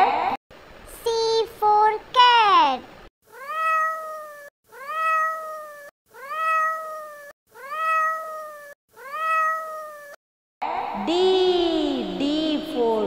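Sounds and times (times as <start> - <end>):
cat meowing: 3.3 - 10.2.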